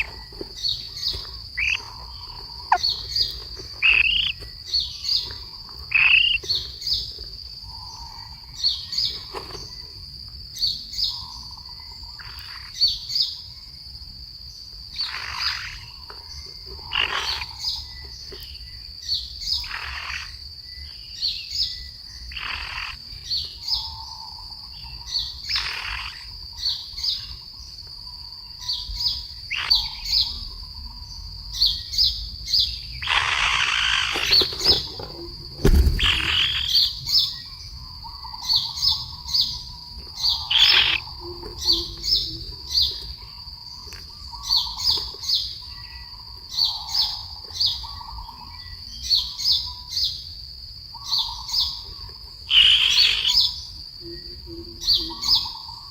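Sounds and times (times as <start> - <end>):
soft low bird calls: 0.0 - 10.0
birds chirping: 0.0 - 55.9
sharp thump: 35.6 - 36.4.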